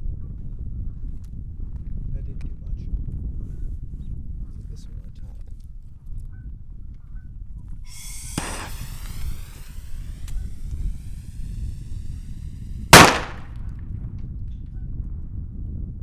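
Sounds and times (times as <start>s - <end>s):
firework bang: 7.9s - 13.5s
whistling rocket: 7.9s - 13.5s.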